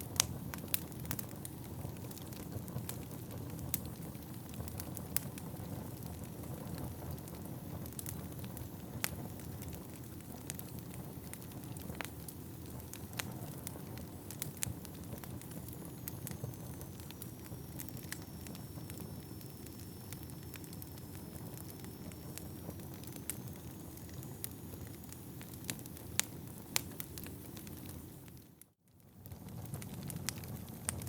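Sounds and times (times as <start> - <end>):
burning logs crackling and popping: 0.0 - 31.0
fire flames rushing: 0.1 - 28.2.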